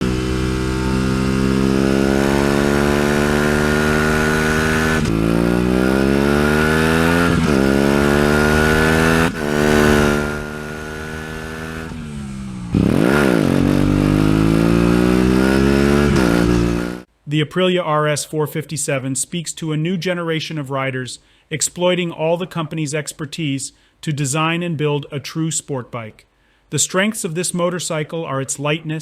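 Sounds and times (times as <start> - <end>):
motorcycle engine accelerating: 0.0 - 17.1.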